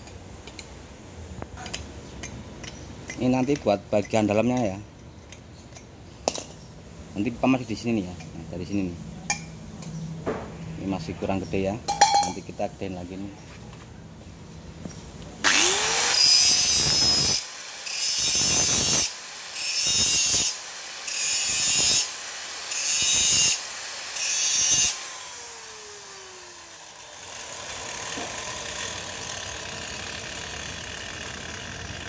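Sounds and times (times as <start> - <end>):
power tool cutting sheet metal: 15.4 - 32.0.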